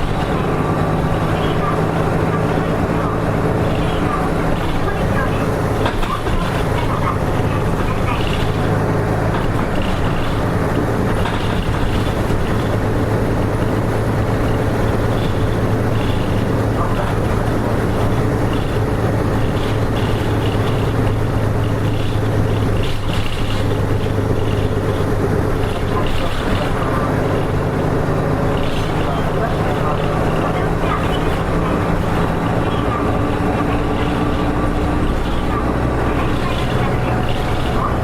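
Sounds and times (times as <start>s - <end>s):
bus diesel engine running: 0.0s - 38.0s
interior rattling: 0.0s - 38.0s.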